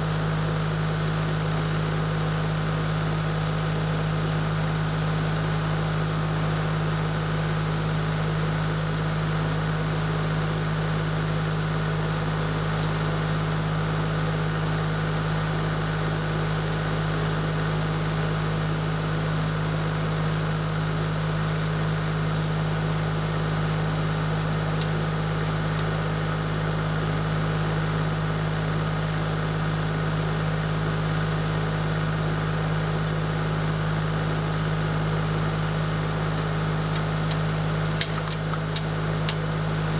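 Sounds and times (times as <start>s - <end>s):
engine running steadily: 18.1s - 39.9s.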